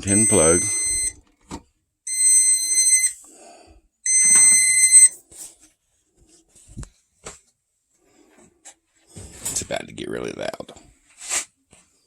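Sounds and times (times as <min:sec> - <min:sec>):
electronic alarm beeping: 0:00.0 - 0:01.2, 0:02.1 - 0:03.2, 0:04.1 - 0:05.2.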